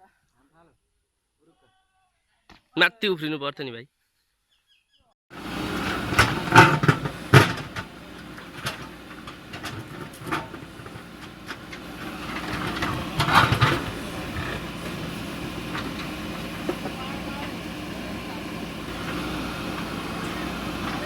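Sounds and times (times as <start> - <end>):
diesel engine running: 5.3 - 21.0
metallic clanks and knocks: 5.4 - 18.1.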